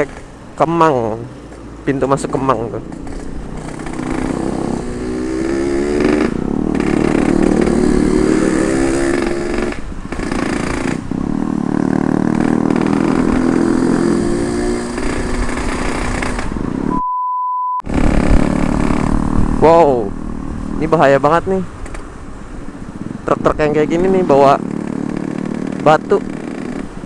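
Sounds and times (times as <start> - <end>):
two-stroke engine accelerating: 0.0 - 16.9, 17.8 - 21.6, 23.0 - 27.0
steady beep: 16.9 - 17.8.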